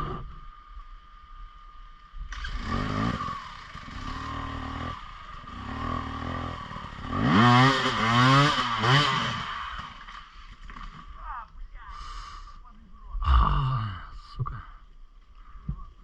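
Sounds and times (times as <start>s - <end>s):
motorcycle engine revving: 2.3s - 10.9s.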